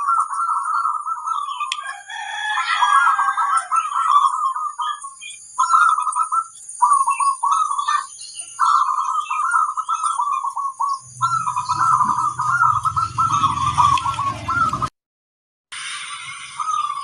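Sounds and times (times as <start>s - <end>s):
doves cooing: 0.0s - 14.9s
low hum: 11.0s - 14.9s.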